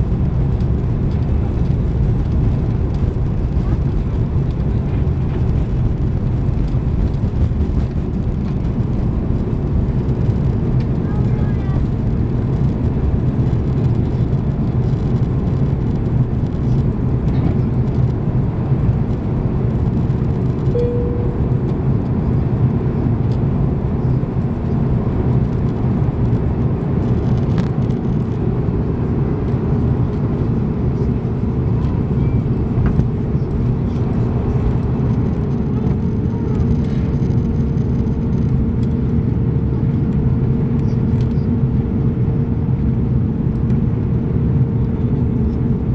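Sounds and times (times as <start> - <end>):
airplane engine rumble in cabin: 0.0 - 45.9
thin steady hum: 20.7 - 21.8.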